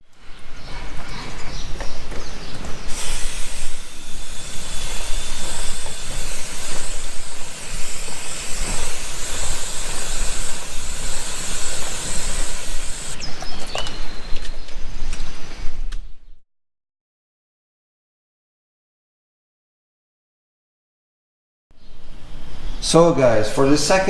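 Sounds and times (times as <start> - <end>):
pressure washer spraying: 2.9 - 13.2.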